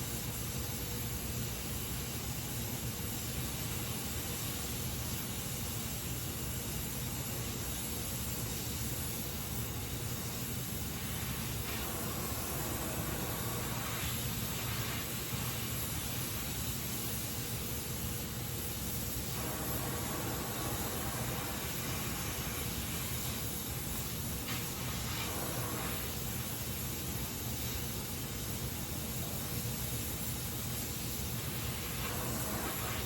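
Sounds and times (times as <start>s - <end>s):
welding torch flame hissing: 0.0s - 33.0s.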